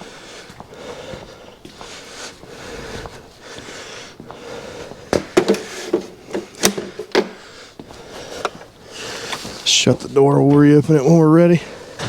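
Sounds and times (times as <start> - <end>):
hard objects knocking and clanking: 5.1 - 7.4
shuffling noise: 5.6 - 12.0.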